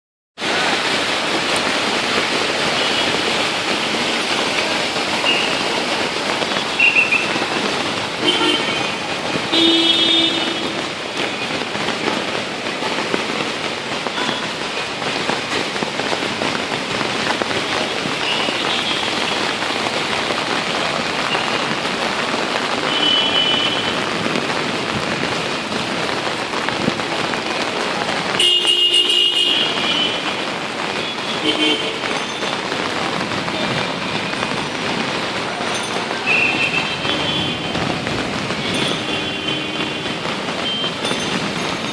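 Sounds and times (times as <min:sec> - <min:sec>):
heavy rain: 0:00.4 - 0:41.9.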